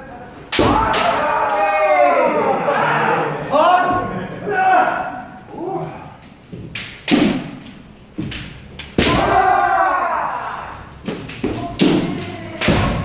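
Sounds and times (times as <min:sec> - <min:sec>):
bamboo swords striking: 0:00.5 - 0:01.5, 0:06.7 - 0:09.6, 0:11.0 - 0:13.0.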